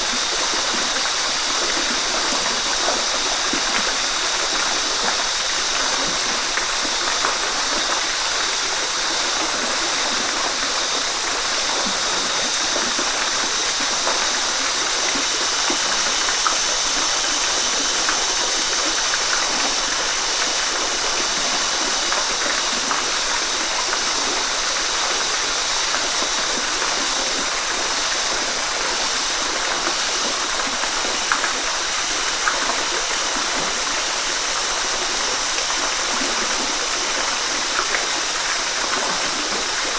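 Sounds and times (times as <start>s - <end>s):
waterfall splashing into pool: 0.0s - 39.9s.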